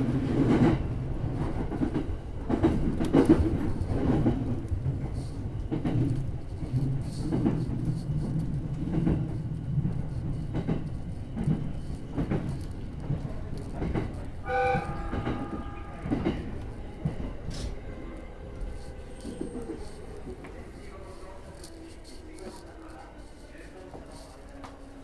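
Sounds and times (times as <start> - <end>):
train rumble on rails: 0.0 - 25.0
short horn-like tone: 14.5 - 16.2.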